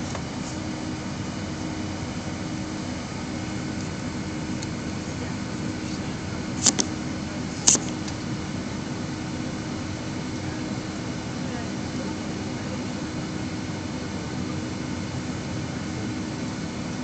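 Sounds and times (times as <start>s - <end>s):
airliner cabin hum: 0.0s - 17.0s.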